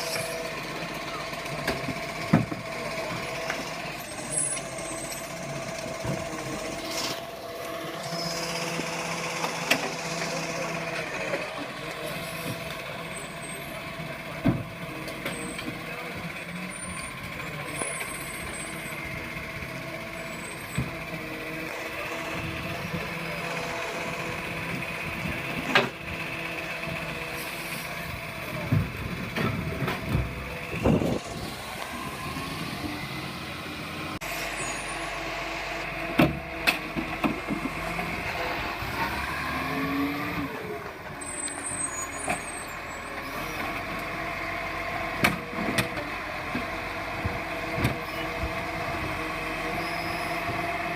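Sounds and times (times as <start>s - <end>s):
heavy truck running: 0.0s - 50.9s.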